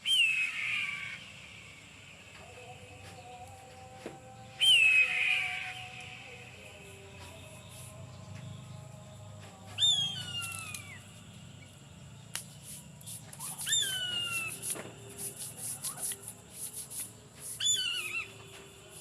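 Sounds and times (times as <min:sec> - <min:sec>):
eagle screaming: 0:00.0 - 0:01.2, 0:04.6 - 0:05.9, 0:13.4 - 0:14.6, 0:17.6 - 0:18.4.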